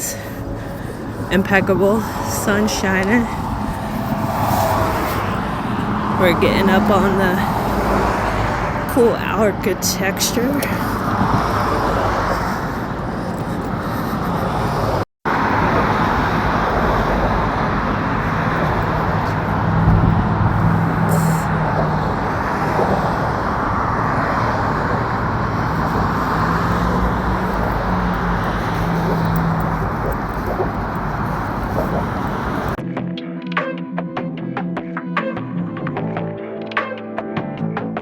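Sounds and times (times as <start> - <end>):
road traffic rushing past: 0.0 - 32.8
low engine drone: 9.5 - 32.8.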